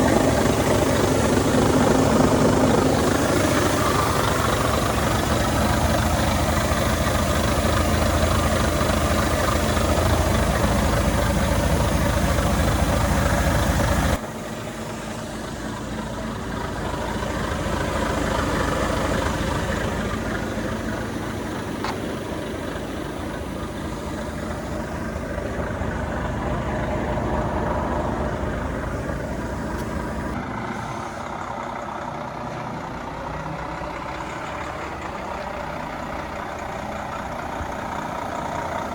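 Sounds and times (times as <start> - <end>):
truck engine idling: 0.0 - 38.9.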